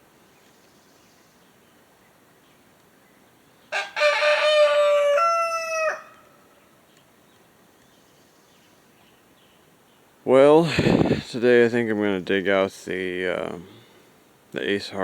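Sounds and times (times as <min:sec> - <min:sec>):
rooster crowing: 0:03.7 - 0:06.5.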